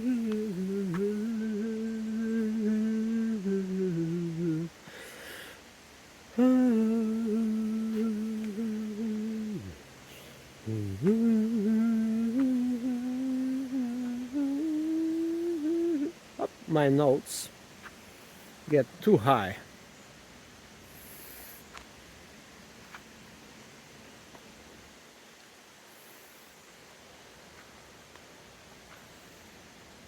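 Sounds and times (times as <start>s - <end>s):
person humming long notes: 0.0s - 5.0s, 6.3s - 16.5s.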